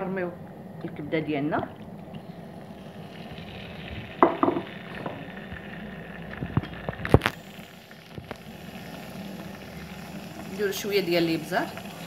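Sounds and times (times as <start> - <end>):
liver sizzling in hot oil: 2.3 - 12.0
sharp clicks and pops: 4.2 - 7.4, 8.1 - 8.4.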